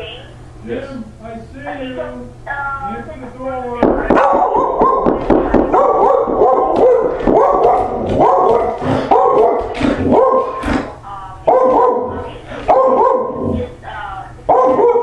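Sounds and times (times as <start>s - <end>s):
dog barking and yipping: 4.2s - 10.6s, 11.5s - 13.4s, 14.5s - 15.0s.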